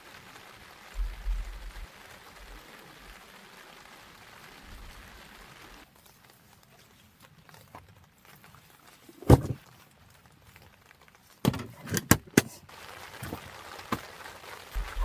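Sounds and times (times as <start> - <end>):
faint rain: 0.0 - 15.0
camping gear knocking: 9.2 - 9.6.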